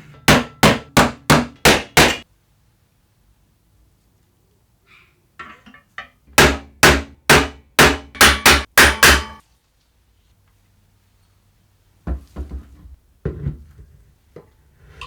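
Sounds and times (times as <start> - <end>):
hammer strikes ringing: 0.0 - 2.2, 6.4 - 9.4
small knocks and handling noises: 12.0 - 14.6.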